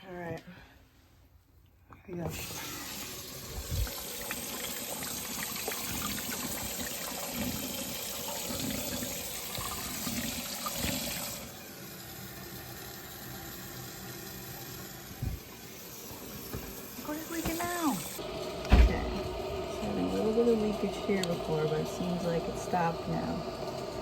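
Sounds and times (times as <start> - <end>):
water rushing into toilet tank: 2.3 - 24.0.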